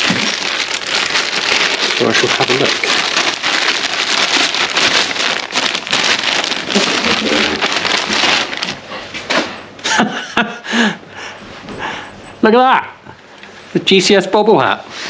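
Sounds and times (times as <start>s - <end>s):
packaging torn and rustled: 0.0s - 8.8s.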